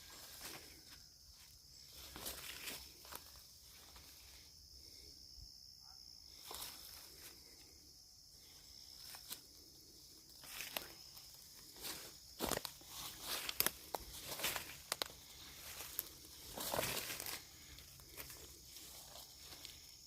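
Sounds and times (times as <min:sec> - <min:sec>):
footsteps crunching on forest floor: 0:00.0 - 0:04.4, 0:08.6 - 0:20.0
high-pitched insect drone: 0:00.0 - 0:20.0.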